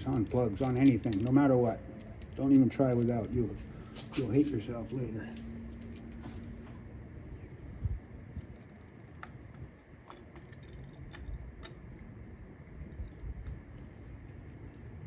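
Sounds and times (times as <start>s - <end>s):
hand tools clinking: 0.0s - 6.6s.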